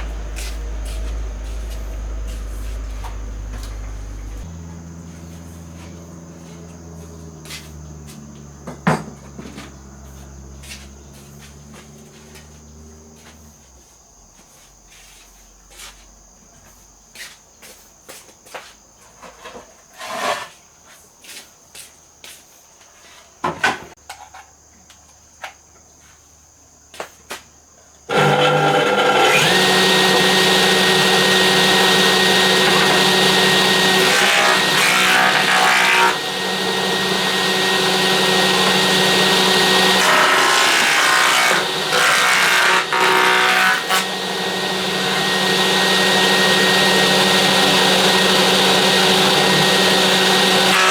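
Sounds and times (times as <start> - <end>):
low hum: 0.0 - 8.6
power tool running: 0.0 - 12.6, 28.1 - 50.9
crickets chirring: 0.0 - 28.1
tools and wood knocking: 7.4 - 9.8.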